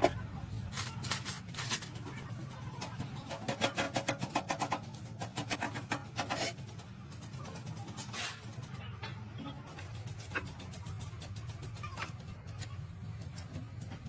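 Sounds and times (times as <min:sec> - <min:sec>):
hand tool rasping on metal: 0:03.4 - 0:06.7.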